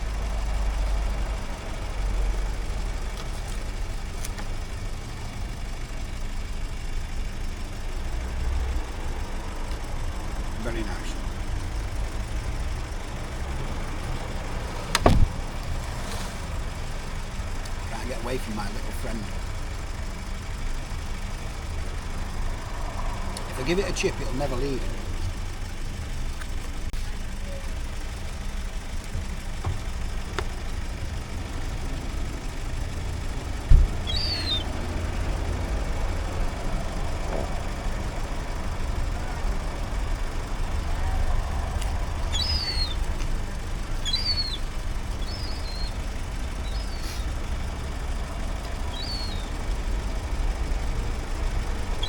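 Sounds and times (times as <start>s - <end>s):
sharp knock: 15.0s - 15.4s
high falling bird chirps: 33.9s - 34.8s, 42.2s - 43.1s, 43.7s - 47.6s, 48.5s - 49.6s.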